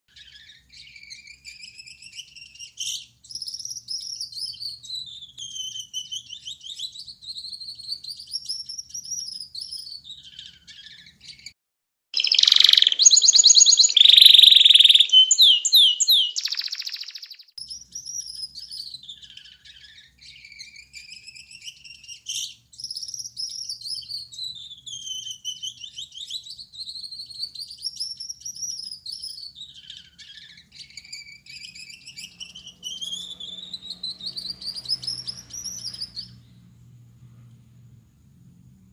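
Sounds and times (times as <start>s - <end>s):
finch singing: 0.1s - 11.5s, 12.2s - 36.5s.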